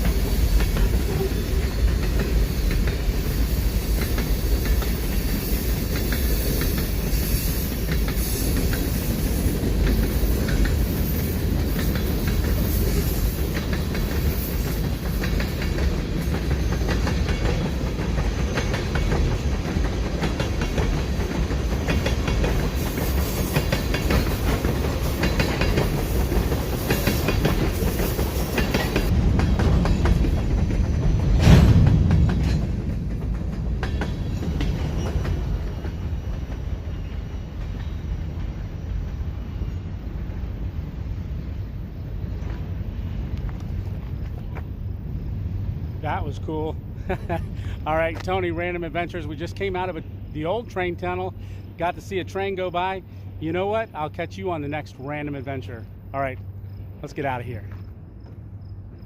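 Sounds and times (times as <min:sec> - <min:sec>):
wheels clacking over rail joints: 0:00.0 - 0:38.6
train rumbling past: 0:00.0 - 0:59.0.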